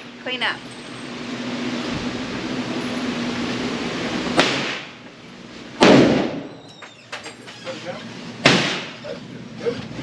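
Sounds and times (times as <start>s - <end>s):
steady background noise: 0.0s - 10.0s
gunshots: 5.8s - 6.5s, 8.4s - 8.9s.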